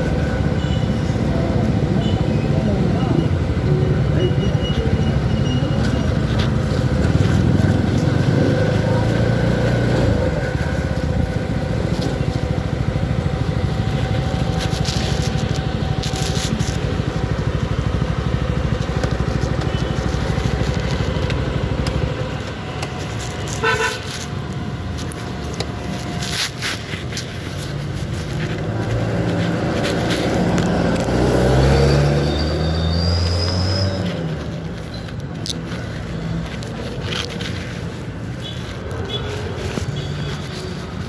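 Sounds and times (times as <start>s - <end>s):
motorcycle engine running: 0.0s - 41.0s
road noise: 0.0s - 41.0s
stuttering horn toot: 23.4s - 24.1s.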